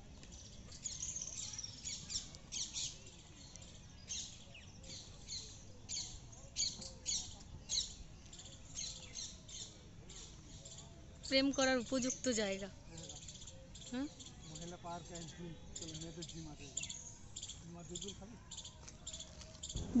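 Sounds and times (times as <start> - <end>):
faint outdoor background: 0.0 - 20.0
birds calling: 11.2 - 20.0.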